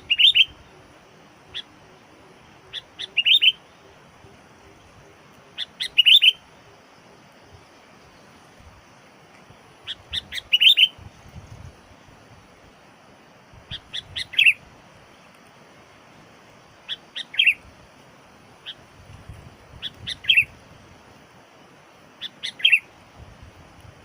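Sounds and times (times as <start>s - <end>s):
bulbul calling: 0.0s - 6.5s, 9.8s - 11.0s, 13.7s - 14.6s, 16.8s - 17.6s, 19.8s - 20.5s, 22.2s - 22.9s.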